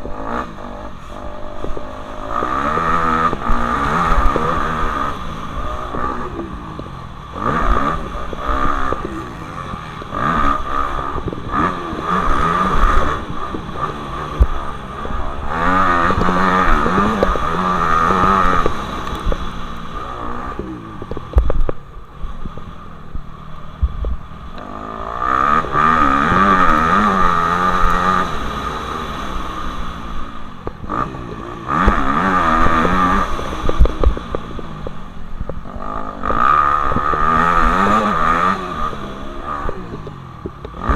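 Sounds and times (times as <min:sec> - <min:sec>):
motocross bikes revving past: 0:00.0 - 0:22.6, 0:24.2 - 0:40.9.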